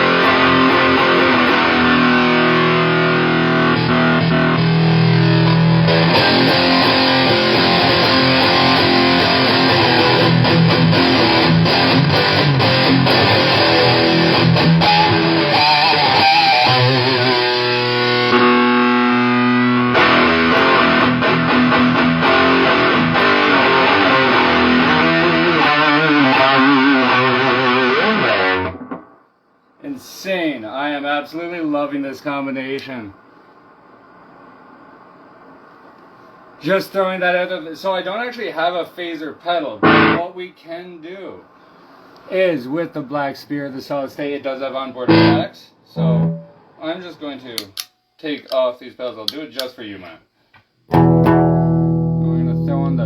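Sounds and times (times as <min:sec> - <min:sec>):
distorted electric guitar riffing: 0:00.0 - 0:29.2, 0:39.8 - 0:40.2, 0:45.1 - 0:46.8, 0:50.9 - 0:53.0.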